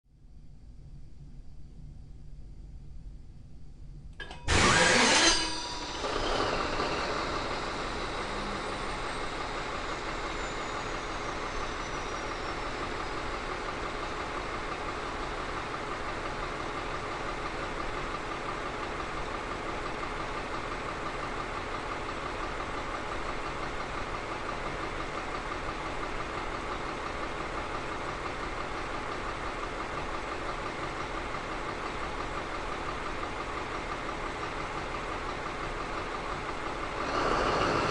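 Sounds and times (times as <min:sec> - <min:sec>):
engine starter burst: 0:04.2 - 0:13.3, 0:37.0 - 0:37.9
diesel engine idling: 0:04.5 - 0:37.9
faint falling whistle: 0:04.6 - 0:13.4.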